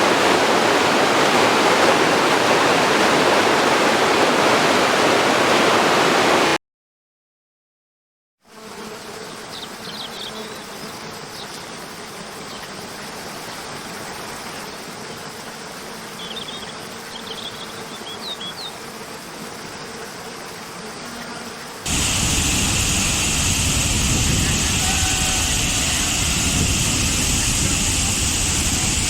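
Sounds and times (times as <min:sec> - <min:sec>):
waterfall roaring: 0:00.0 - 0:06.6, 0:21.9 - 0:29.0.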